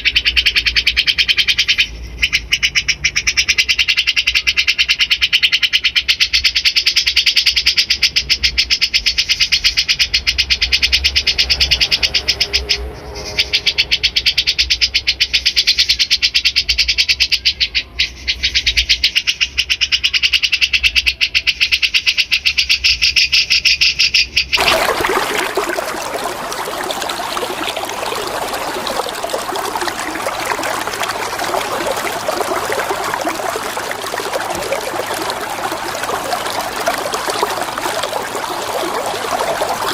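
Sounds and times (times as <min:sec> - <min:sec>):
running water: 0:24.6 - 0:39.9.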